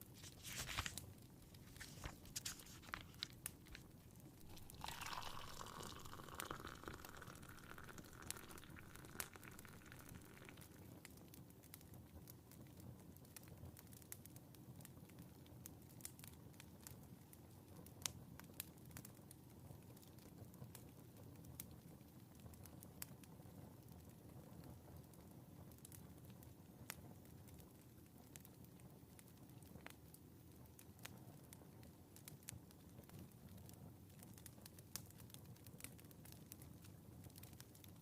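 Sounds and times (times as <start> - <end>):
soft rustle: 0.0 - 10.6
wood fire crackling and popping: 0.0 - 38.0.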